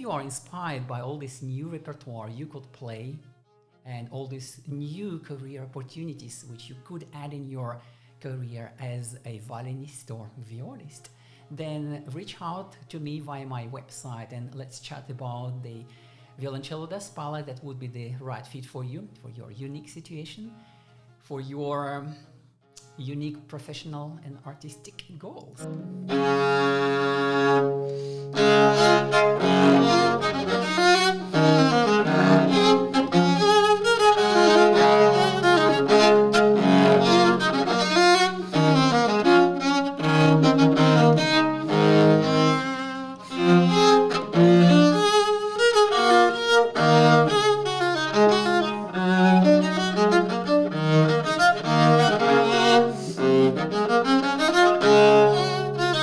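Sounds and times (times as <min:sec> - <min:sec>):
cello bowed with double stops: 0:25.6 - 0:56.0.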